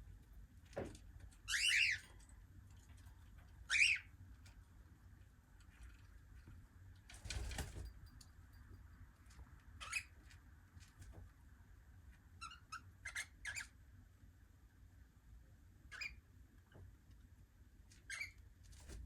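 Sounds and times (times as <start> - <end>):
cockatiels chirping: 1.5 - 2.1, 3.7 - 4.1, 9.8 - 10.1, 12.4 - 13.8, 15.9 - 16.2, 18.1 - 18.4.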